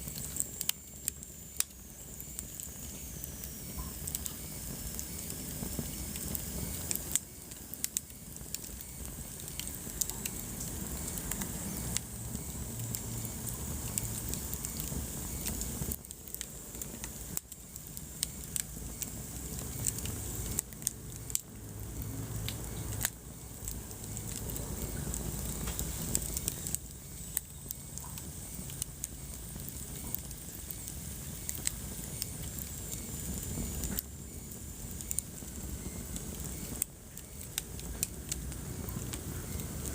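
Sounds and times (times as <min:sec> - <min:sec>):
low rumble of flames: 0:00.0 - 0:39.9
wood fire crackling and popping: 0:00.0 - 0:39.9.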